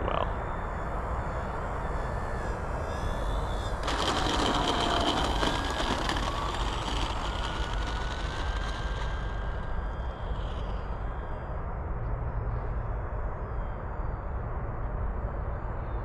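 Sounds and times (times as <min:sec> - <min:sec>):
wind rumble on microphone: 0:00.0 - 0:16.0
model plane motor whining drone: 0:02.1 - 0:11.3.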